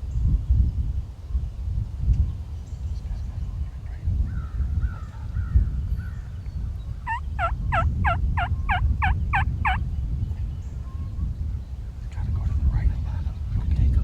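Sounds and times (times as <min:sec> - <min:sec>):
steady low rumble: 0:00.0 - 0:14.0
turkey yelps: 0:07.1 - 0:09.8.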